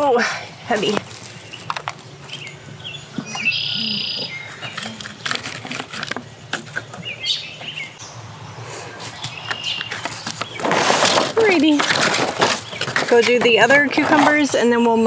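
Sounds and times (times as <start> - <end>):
birds chirping: 0.0 - 15.0
hands handling plastic plant pot: 0.7 - 7.7, 9.0 - 15.0.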